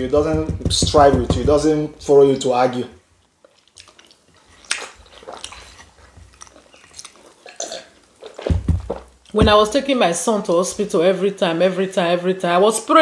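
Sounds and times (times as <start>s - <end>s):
chewing and wet smacks: 3.2s - 9.4s
dull thump: 8.5s - 9.8s.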